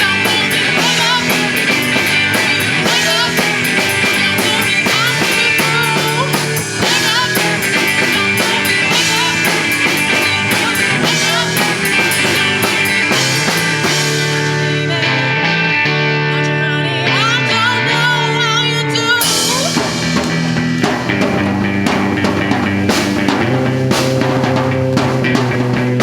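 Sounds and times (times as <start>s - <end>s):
rock band playing: 0.0s - 26.0s.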